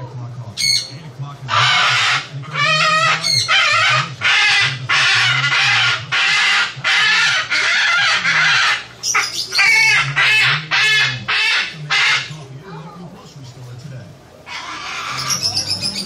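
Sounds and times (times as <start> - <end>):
parrot screeching: 0.6 - 0.9, 1.5 - 12.3, 14.5 - 16.0
parrot tuneful calls: 0.6 - 0.9, 1.5 - 12.3, 14.5 - 16.0.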